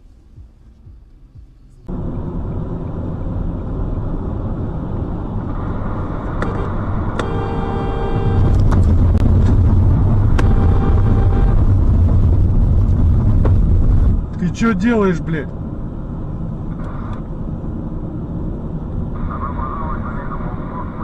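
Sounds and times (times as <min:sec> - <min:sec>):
vehicle engine and road noise: 0:00.0 - 0:21.0
car horn blasts: 0:06.4 - 0:08.8, 0:10.2 - 0:11.9.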